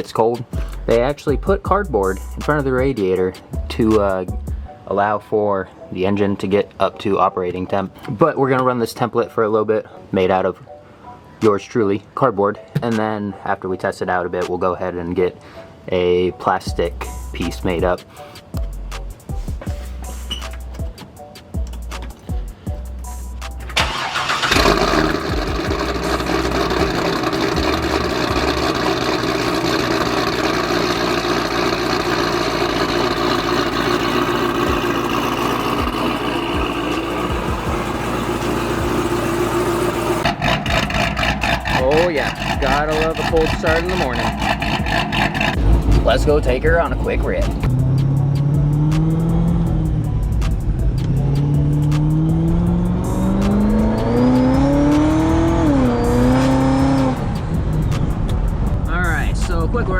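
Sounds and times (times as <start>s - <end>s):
car engine idling: 21.6s - 59.9s
high supercharger whine: 23.7s - 59.9s.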